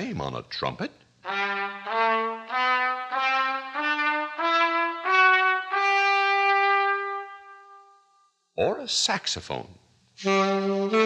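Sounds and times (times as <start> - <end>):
trumpet playing ascending scale: 1.3 - 8.0, 10.2 - 11.0.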